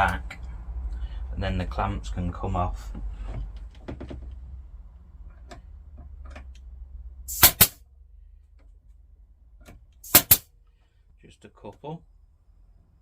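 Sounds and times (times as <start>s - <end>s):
nail gun firing: 7.3s - 7.8s, 10.0s - 10.4s.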